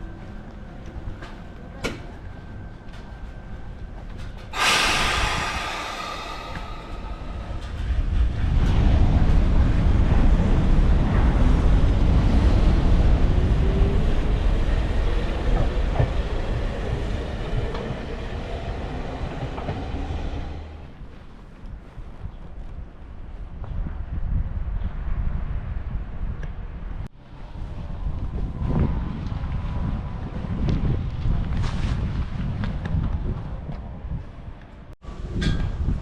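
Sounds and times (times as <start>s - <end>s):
train rumbling on rails: 0.0s - 36.0s
sudden loud noise: 4.6s - 9.8s.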